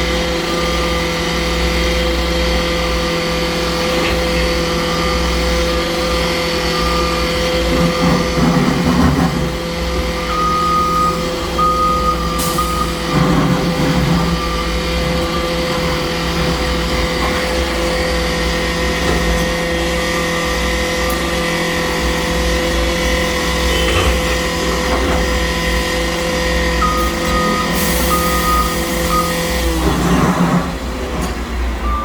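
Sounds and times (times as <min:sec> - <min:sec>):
heavy construction machinery running: 0:00.0 - 0:32.0
backup alarm beeping: 0:10.2 - 0:13.3, 0:23.5 - 0:25.2, 0:26.1 - 0:29.8.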